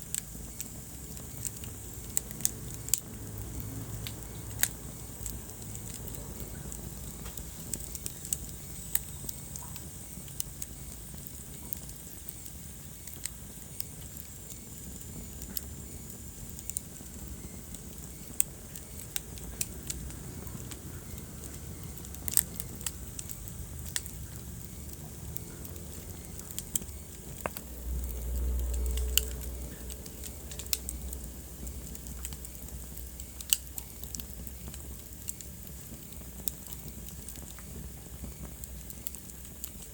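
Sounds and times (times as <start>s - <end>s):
low rumble of flames: 0.0s - 39.9s
wood fire crackling and popping: 0.0s - 39.9s.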